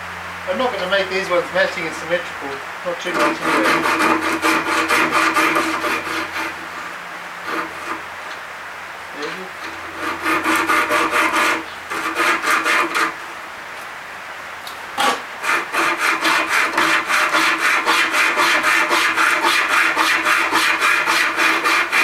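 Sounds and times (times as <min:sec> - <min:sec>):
hand rasp filing wood: 0:03.0 - 0:08.0, 0:09.6 - 0:13.2, 0:15.0 - 0:22.0.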